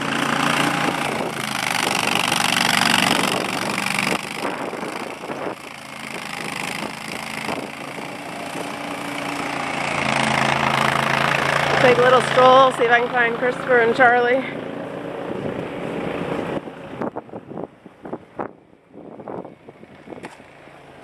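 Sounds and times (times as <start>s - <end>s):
snow plow engine running: 0.0s - 21.0s.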